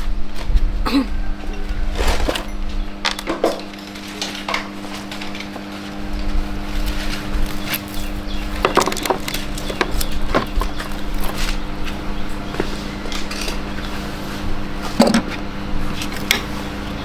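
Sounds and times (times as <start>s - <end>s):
hand tools knocking and clicking: 15.0s - 15.4s.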